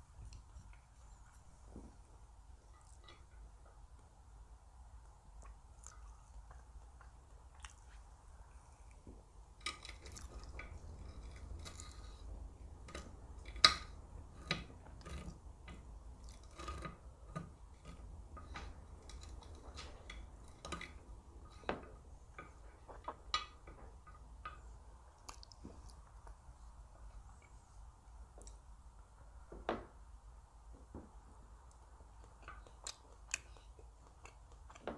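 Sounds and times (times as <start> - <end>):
person chewing: 5.4 - 9.0, 32.1 - 34.8
sharp clicks and knocks: 8.9 - 26.4.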